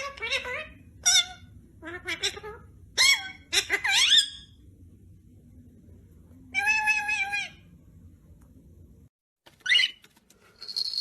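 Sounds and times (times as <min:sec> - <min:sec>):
parrot squeaky calls: 0:00.0 - 0:04.6, 0:06.5 - 0:07.6, 0:09.6 - 0:10.0.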